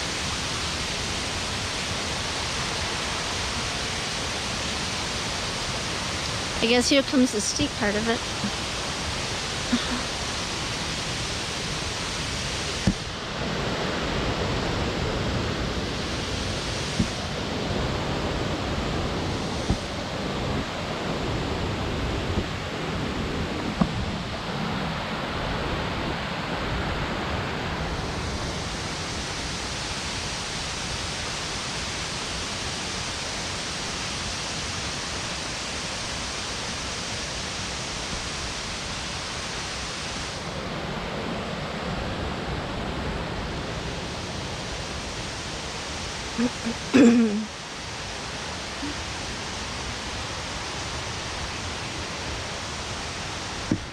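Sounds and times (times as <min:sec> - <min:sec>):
waterfall rushing: 0:00.0 - 0:41.5.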